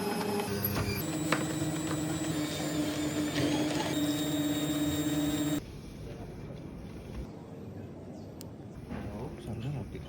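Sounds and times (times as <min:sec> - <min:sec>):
electric machine hum: 0:00.0 - 0:05.6.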